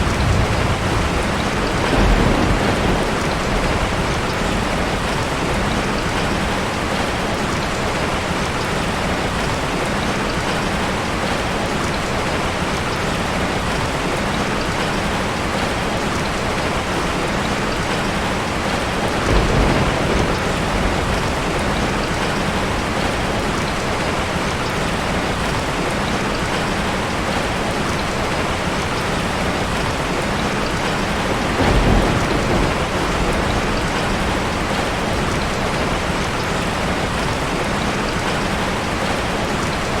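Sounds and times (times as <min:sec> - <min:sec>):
steady rain falling: 0:00.0 - 0:40.0.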